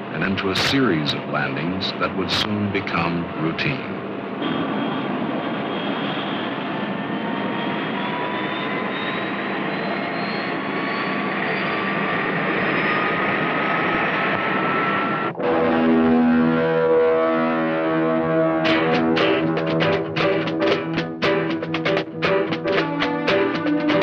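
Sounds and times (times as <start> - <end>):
jet engine whine: 0.0 - 21.0
electric guitar music: 15.3 - 24.0.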